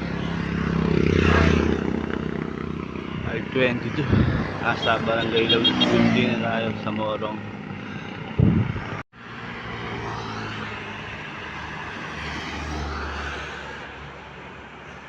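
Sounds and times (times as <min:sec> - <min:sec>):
vehicle passing rumble: 0:00.0 - 0:10.7
wind and road noise: 0:00.0 - 0:15.0.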